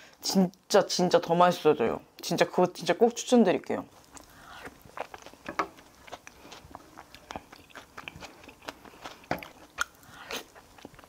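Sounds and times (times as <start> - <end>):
person chewing food: 3.9 - 11.0.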